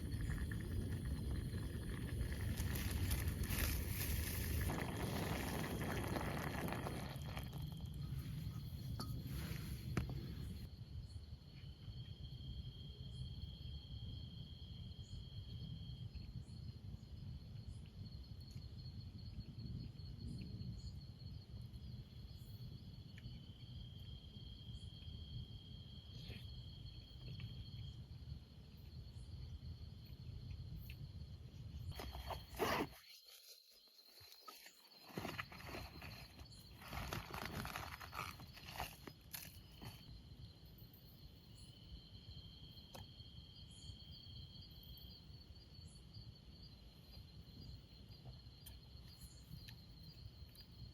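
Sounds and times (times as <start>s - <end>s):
lower insect trill: 11.0s - 50.9s.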